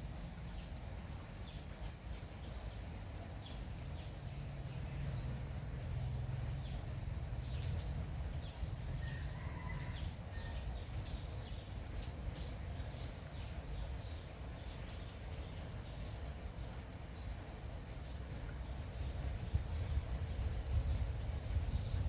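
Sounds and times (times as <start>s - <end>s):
light rain: 0.0s - 22.0s
small birds chirping: 0.1s - 22.0s.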